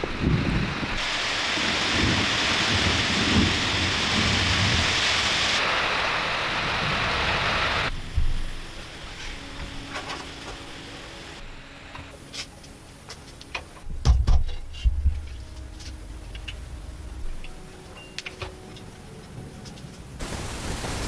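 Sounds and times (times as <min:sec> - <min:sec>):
water spraying hiss: 0:00.0 - 0:13.3, 0:20.2 - 0:21.0
low hum: 0:13.8 - 0:20.5.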